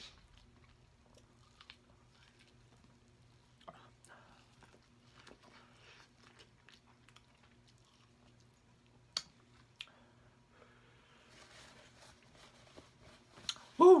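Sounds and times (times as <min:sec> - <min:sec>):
close-miked chewing: 0:00.0 - 0:09.9.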